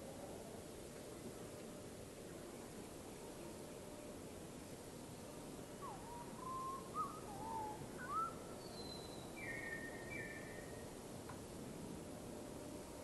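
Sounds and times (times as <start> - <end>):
faint background hiss: 0.0 - 13.0
bird whistling calls: 5.8 - 10.7.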